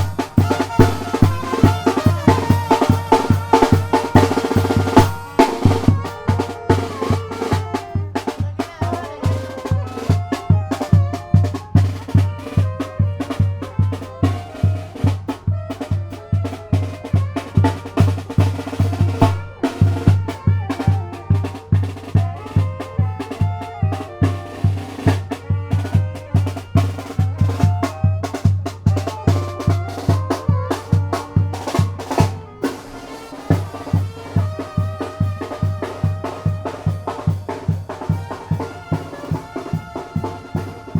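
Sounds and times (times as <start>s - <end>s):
bass drum beating: 0.0s - 6.4s, 19.2s - 20.4s
snare drum strokes: 0.0s - 8.4s, 14.7s - 23.4s, 24.0s - 40.9s
brass melody: 0.0s - 40.9s.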